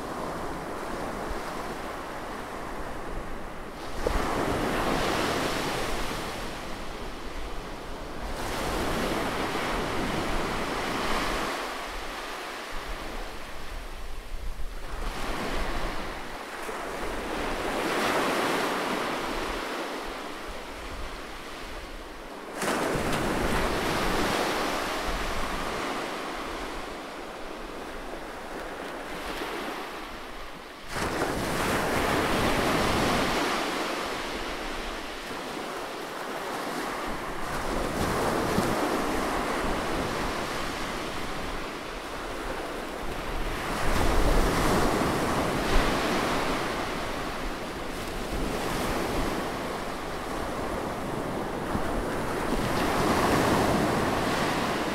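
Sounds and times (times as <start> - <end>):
ocean waves breaking: 15.1 - 54.9.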